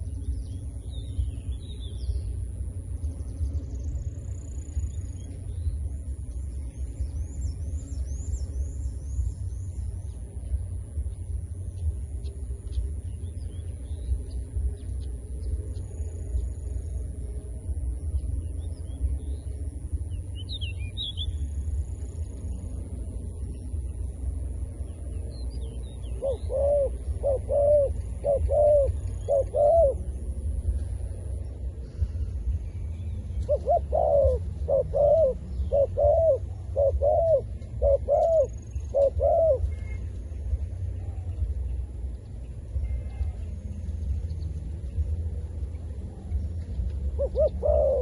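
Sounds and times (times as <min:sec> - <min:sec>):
steady low rumble: 0:00.0 - 0:48.0
dove cooing: 0:26.1 - 0:30.7, 0:33.4 - 0:40.0, 0:47.0 - 0:48.0.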